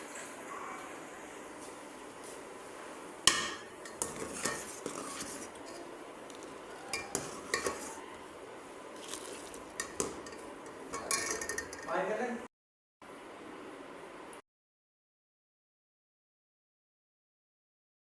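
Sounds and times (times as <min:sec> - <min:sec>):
cutlery clinking against dishes: 0:06.9 - 0:08.0, 0:09.8 - 0:11.9.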